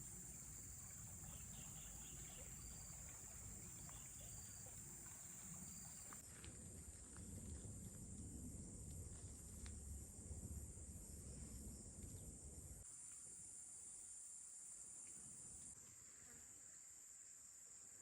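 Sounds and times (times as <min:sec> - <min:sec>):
high-pitched insect chorus: 0:00.0 - 0:06.2.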